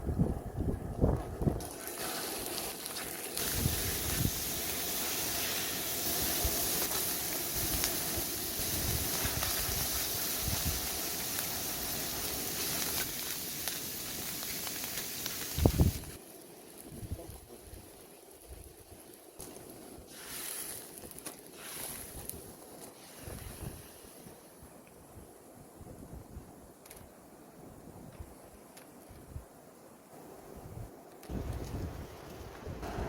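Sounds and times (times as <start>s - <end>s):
food sizzling in a hot pan: 1.6s - 16.2s.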